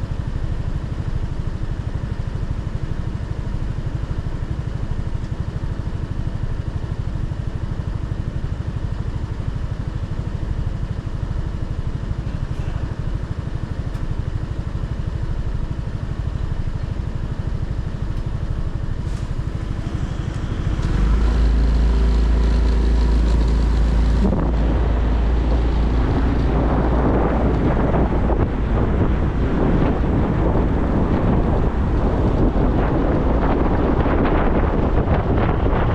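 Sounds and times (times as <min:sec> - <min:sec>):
motorcycle engine running: 0:00.0 - 0:35.9
wind noise on microphone: 0:19.0 - 0:35.9.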